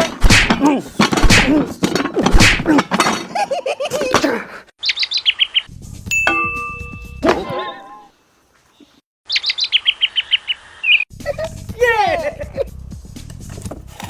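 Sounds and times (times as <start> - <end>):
sharp slaps: 0.0 - 1.6, 2.3 - 2.8
bird-like chirps: 4.8 - 5.7, 8.6 - 11.1.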